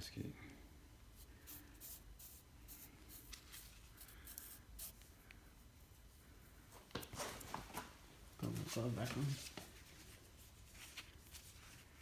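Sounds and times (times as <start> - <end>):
faint scratching and rubbing: 8.4 - 12.0.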